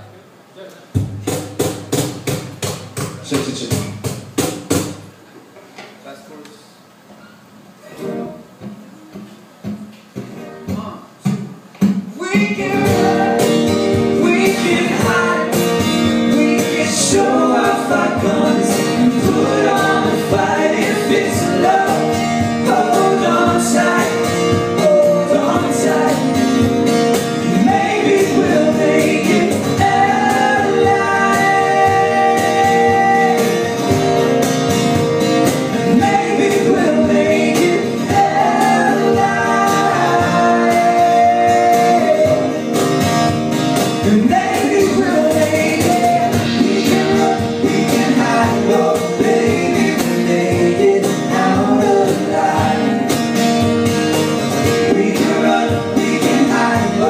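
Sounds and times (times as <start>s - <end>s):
guitar accompaniment: 7.2s - 57.0s
man singing: 12.1s - 26.7s, 27.4s - 33.8s, 35.8s - 42.8s, 44.0s - 53.2s, 54.8s - 57.0s.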